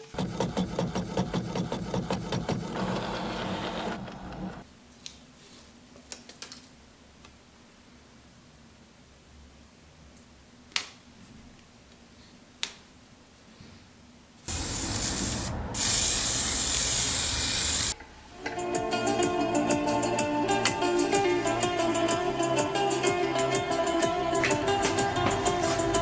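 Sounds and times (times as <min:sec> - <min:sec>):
spray hissing: 0:14.5 - 0:18.0
plucked string music: 0:18.0 - 0:26.0.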